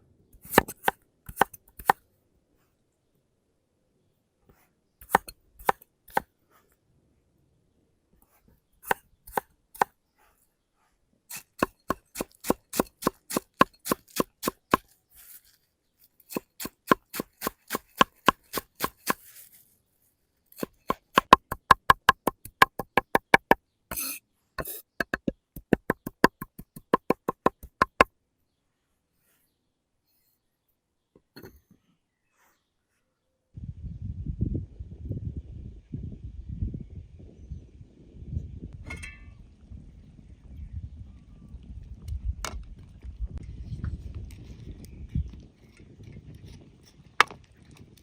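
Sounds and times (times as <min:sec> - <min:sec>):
knife chopping on cutting board: 0:00.4 - 0:02.0
knife scraping cutting board: 0:11.3 - 0:14.6, 0:23.9 - 0:24.9.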